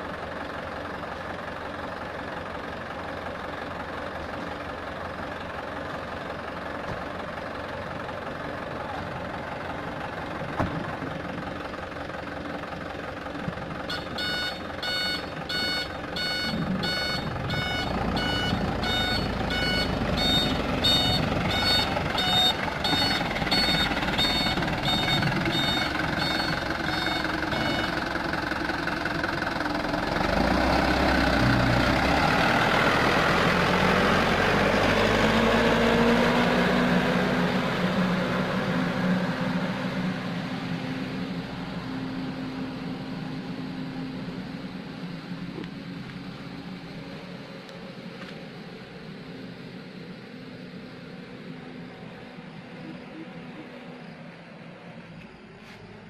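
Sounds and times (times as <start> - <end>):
truck diesel engine running: 0.0 - 56.0
reversing alarm beeping: 13.9 - 28.1.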